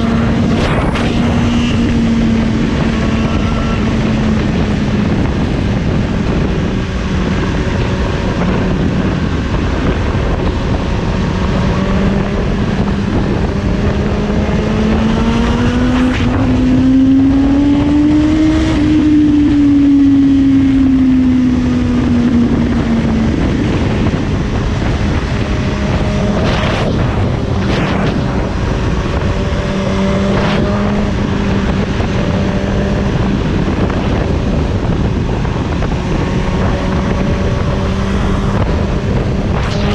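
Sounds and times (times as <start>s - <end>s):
motorcycle engine cruising: 0.0s - 39.9s
wind noise on microphone: 0.0s - 39.9s.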